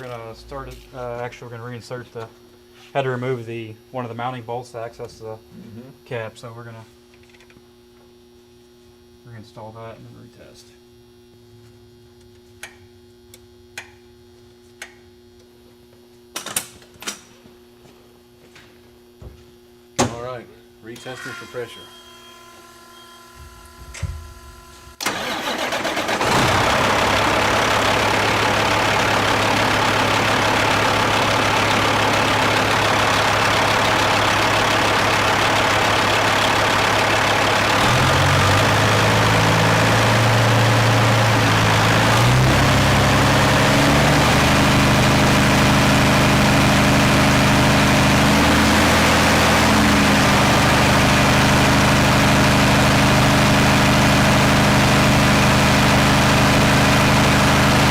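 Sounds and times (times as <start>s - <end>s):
diesel engine cranking and running: 25.0s - 57.9s.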